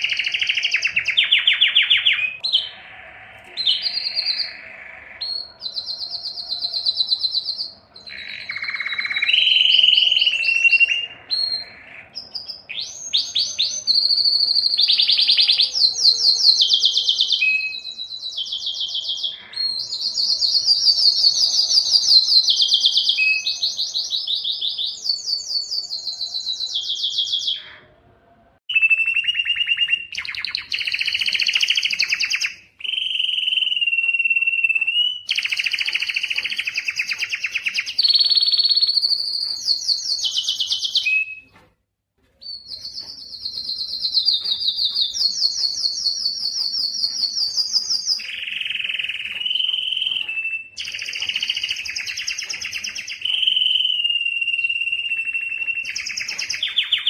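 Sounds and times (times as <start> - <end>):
canary singing trills: 0.0 - 28.0, 28.7 - 41.6, 42.3 - 57.0.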